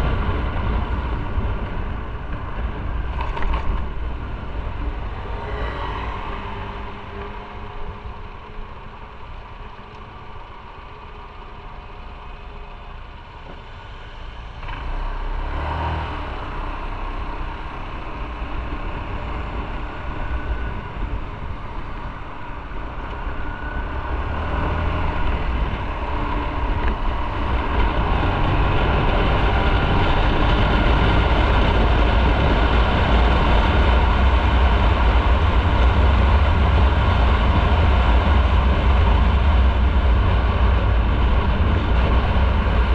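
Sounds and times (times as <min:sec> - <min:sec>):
motorcycle engine: 0:00.0 - 0:42.9
road noise: 0:00.0 - 0:42.9
rushing wind: 0:00.0 - 0:42.9.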